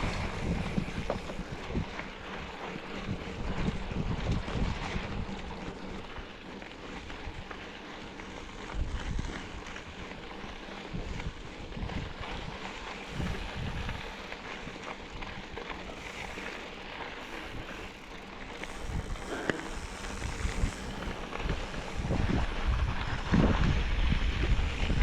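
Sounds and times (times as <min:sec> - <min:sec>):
wind buffeting microphone: 0:00.0 - 0:06.1, 0:10.8 - 0:14.4, 0:15.0 - 0:25.0.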